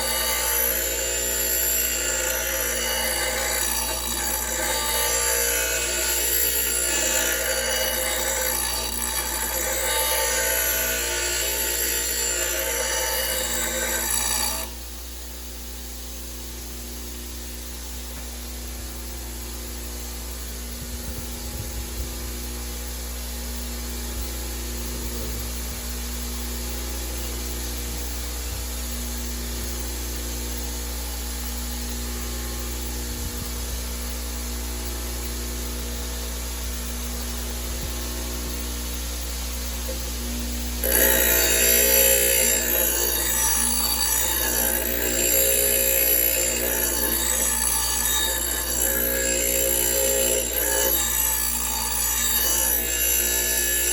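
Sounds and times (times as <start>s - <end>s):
metal grinding on metal: 0.0s - 14.8s, 40.8s - 53.9s
steady low hum: 0.0s - 53.9s.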